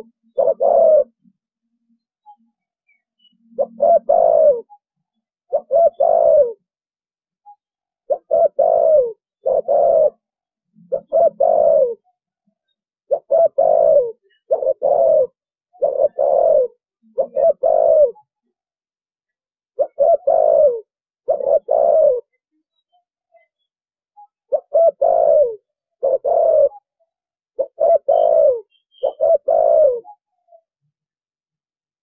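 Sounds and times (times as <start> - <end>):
dove cooing: 0.0 - 1.2, 3.5 - 4.7, 5.5 - 6.6, 8.1 - 10.3, 10.9 - 12.1, 13.1 - 18.3, 19.8 - 22.4, 24.5 - 26.9, 27.6 - 30.2.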